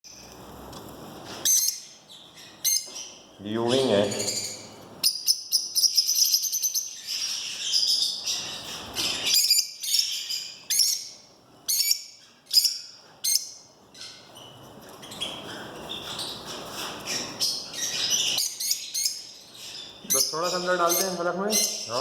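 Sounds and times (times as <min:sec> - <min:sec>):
chicks begging chirps: 0:01.3 - 0:22.0.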